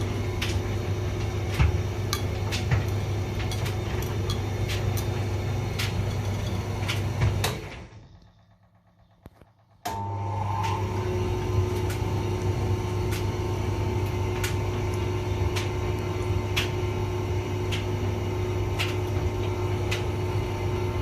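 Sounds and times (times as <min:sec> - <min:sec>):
tumble dryer running: 0:00.0 - 0:21.0.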